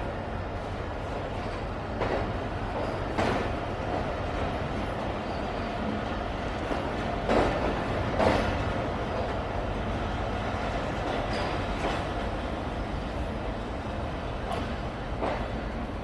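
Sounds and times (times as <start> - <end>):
train rumbling on track: 0.0 - 16.0
train wheel knocks: 2.0 - 4.1, 6.6 - 9.4, 11.0 - 12.2, 14.4 - 15.6.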